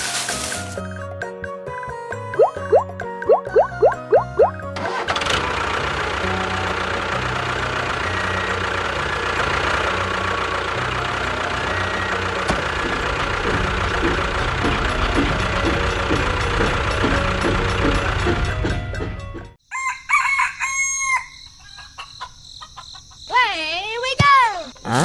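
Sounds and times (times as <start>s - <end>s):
music with rising slides: 2.1s - 19.5s
engine running steadily: 4.3s - 19.6s.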